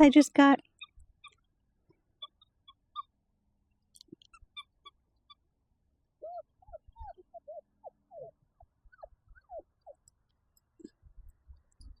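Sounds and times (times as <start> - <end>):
puppies whimpering and squeaking: 0.7 - 1.5, 2.2 - 3.2, 4.3 - 5.5, 6.2 - 10.1.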